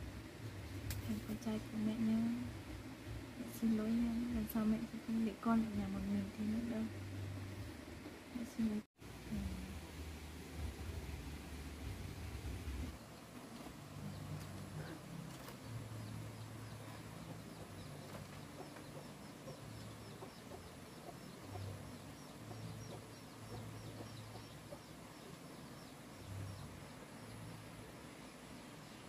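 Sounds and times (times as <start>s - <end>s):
small bird chirping: 14.0s - 27.8s.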